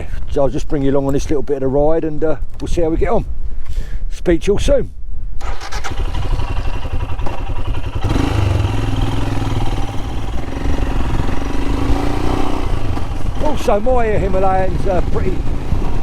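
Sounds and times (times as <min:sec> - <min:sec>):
motorcycle engine running: 0:05.8 - 0:16.0.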